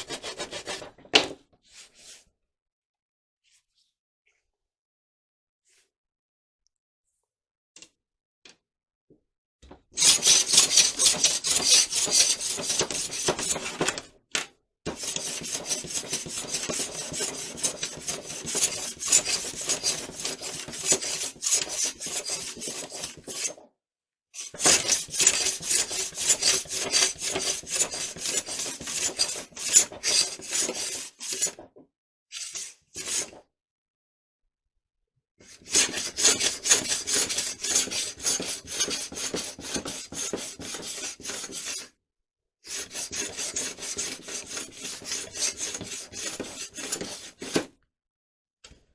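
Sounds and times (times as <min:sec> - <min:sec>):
hand sanding strokes: 0:10.0 - 0:13.3, 0:15.1 - 0:23.5, 0:24.6 - 0:31.5, 0:42.8 - 0:47.6.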